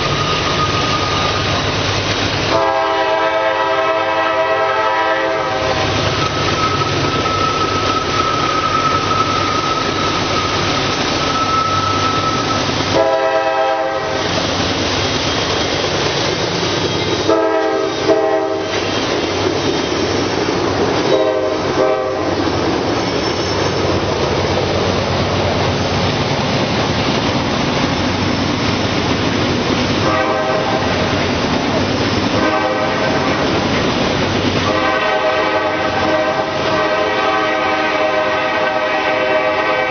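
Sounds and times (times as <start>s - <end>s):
freight train rail and wheel noise: 0.0s - 39.9s
locomotive air horn blasts: 2.5s - 6.0s, 11.3s - 14.3s, 17.2s - 18.9s, 21.0s - 22.4s, 30.0s - 31.0s, 32.4s - 33.5s, 34.6s - 39.9s.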